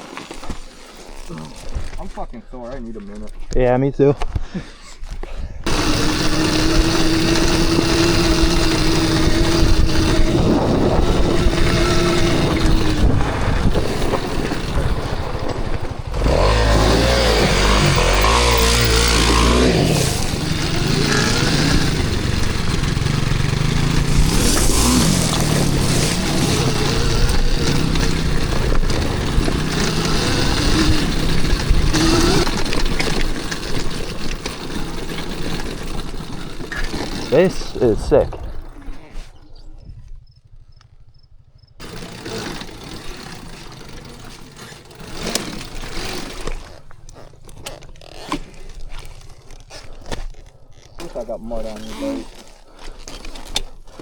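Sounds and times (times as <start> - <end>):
engine with low uneven note: 5.6 - 52.3
dirt bike engine running: 5.6 - 54.0
heavy rushing noise: 5.7 - 32.6.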